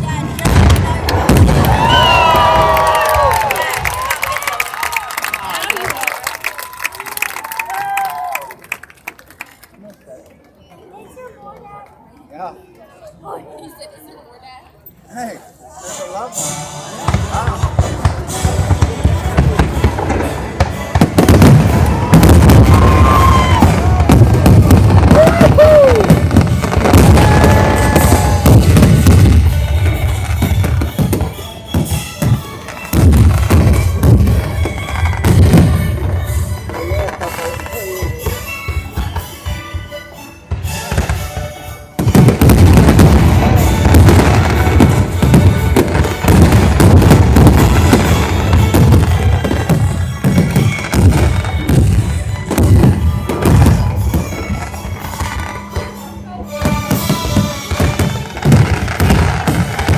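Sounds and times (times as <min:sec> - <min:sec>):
deep fireworks booms: 0:00.0 - 0:03.4, 0:17.1 - 0:37.5, 0:42.0 - 0:56.0, 0:56.7 - 0:59.9
fireworks bangs and crackles: 0:00.0 - 0:04.2, 0:17.0 - 0:59.9
music playing: 0:15.8 - 0:59.9.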